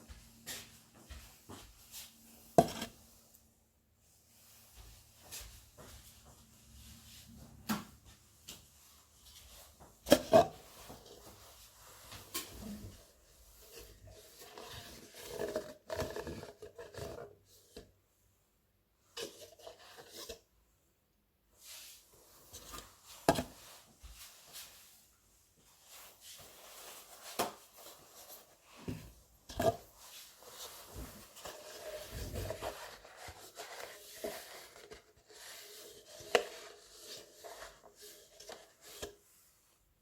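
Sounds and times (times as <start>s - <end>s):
knife scraping board: 2.6s - 2.9s.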